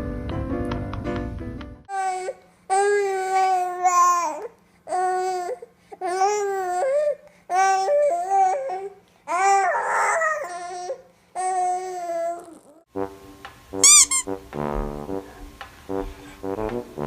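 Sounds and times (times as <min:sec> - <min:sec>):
baby crying: 0:01.9 - 0:12.9.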